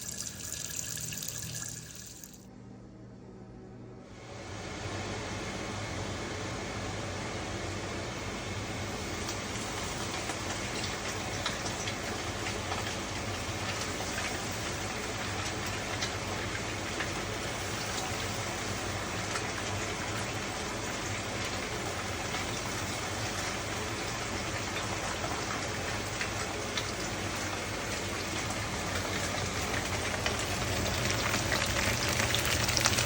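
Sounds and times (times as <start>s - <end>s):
rain falling: 23.8s - 33.0s.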